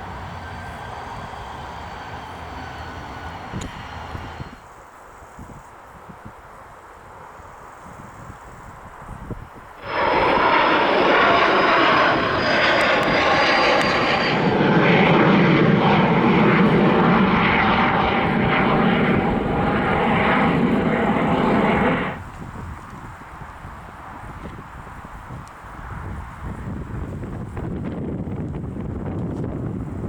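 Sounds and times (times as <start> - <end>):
jet engine roar: 0.0 - 4.6, 9.8 - 22.6
high fan whine: 9.8 - 22.6.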